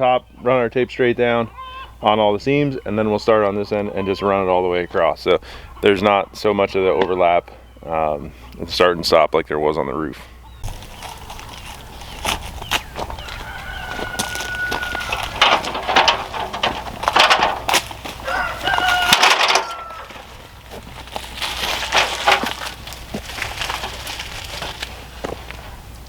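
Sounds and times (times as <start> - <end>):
rooster crowing: 12.8 - 16.2, 18.1 - 20.6.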